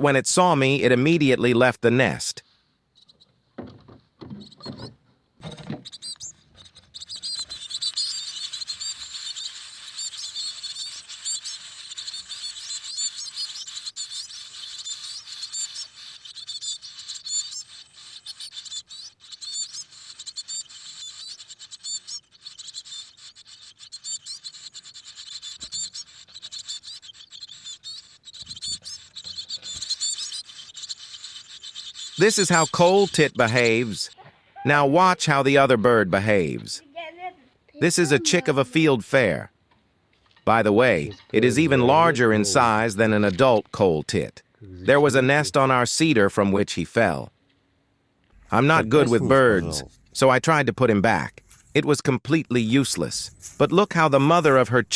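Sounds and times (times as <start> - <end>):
nestlings chirping high-pitched: 3.0 - 3.3, 4.4 - 35.6, 40.6 - 44.0, 44.9 - 45.8, 48.3 - 54.9
soft knocks: 3.6 - 5.8.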